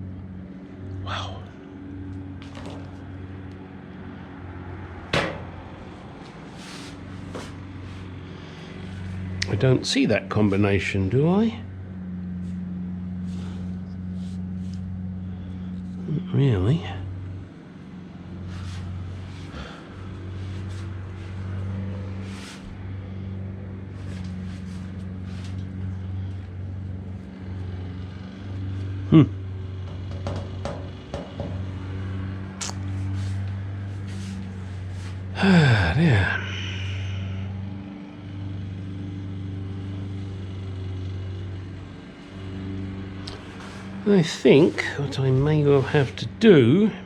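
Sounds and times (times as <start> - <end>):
low hum: 0.0 - 30.2, 31.4 - 47.0
sharp knock: 5.2 - 5.5
faint rustles and scrapes: 5.9 - 9.4, 12.3 - 15.0, 18.4 - 23.0, 23.7 - 26.5, 32.9 - 35.3, 43.4 - 46.2.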